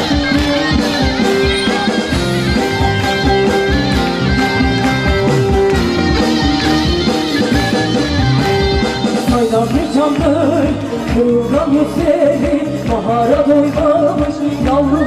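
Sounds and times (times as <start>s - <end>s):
plucked strings: 0.0s - 11.3s
steady drum beat: 0.0s - 14.8s.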